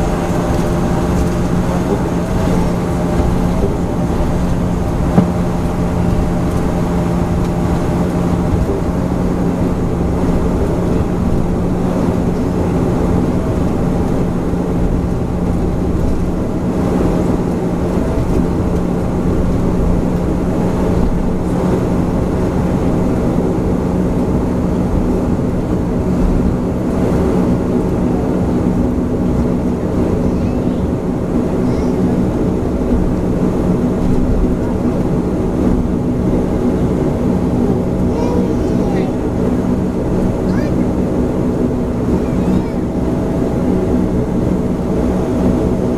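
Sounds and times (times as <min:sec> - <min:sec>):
turboprop engines droning: 0:00.0 - 0:45.9.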